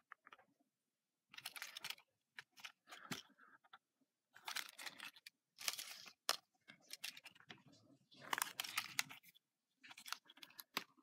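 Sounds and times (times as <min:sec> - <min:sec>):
plastic packaging rustling: 0:01.3 - 0:03.3, 0:04.4 - 0:11.0.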